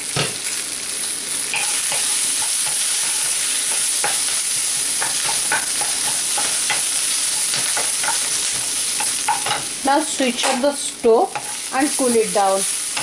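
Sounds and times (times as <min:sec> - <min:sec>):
onions sizzling in oil: 0:00.0 - 0:13.0
spatula scraping and stirring: 0:01.5 - 0:09.8, 0:11.3 - 0:13.0.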